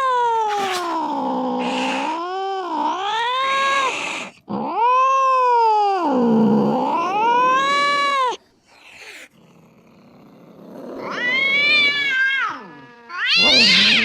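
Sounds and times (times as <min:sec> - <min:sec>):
cat yowling: 0:11.0 - 0:14.0.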